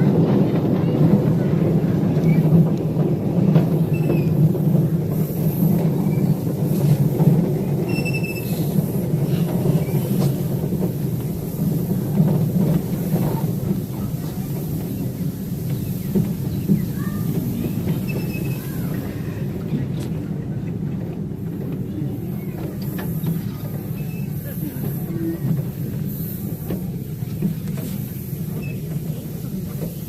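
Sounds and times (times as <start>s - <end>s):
train cars rolling on rails: 0.0s - 30.0s
high wheel squeals: 18.0s - 19.0s.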